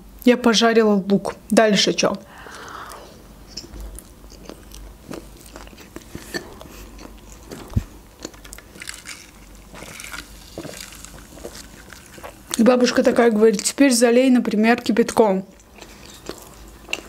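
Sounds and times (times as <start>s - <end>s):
wet chewing and mouth clicks: 2.4s - 13.8s, 15.5s - 17.0s.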